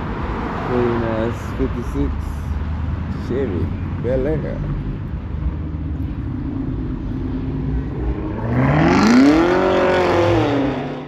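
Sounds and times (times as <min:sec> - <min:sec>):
car engine revving: 0:06.4 - 0:11.0.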